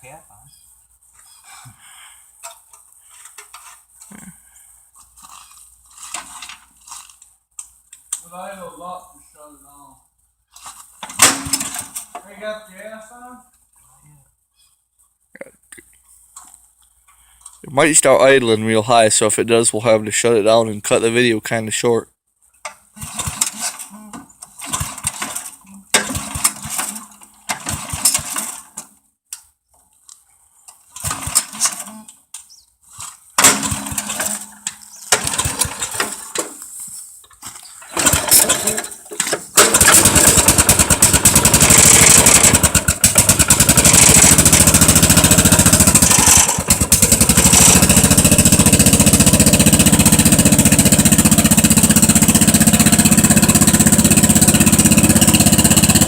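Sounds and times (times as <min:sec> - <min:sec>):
tractor engine cranking: 0:02.4 - 0:04.1, 0:05.0 - 0:08.2, 0:10.5 - 0:12.5, 0:22.6 - 0:29.0, 0:30.7 - 0:32.3, 0:32.9 - 0:56.0
tractor engine running: 0:23.0 - 0:23.8, 0:24.5 - 0:28.8, 0:31.0 - 0:31.9, 0:33.4 - 0:36.9, 0:37.8 - 0:56.0.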